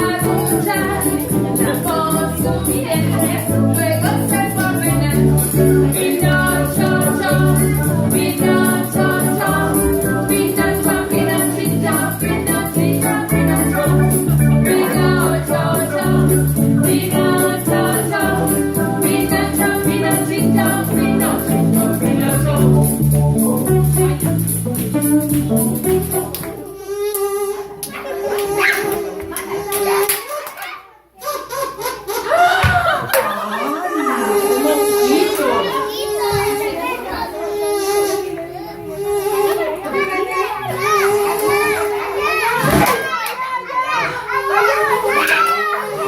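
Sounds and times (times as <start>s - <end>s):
live band playing: 0.0s - 26.8s.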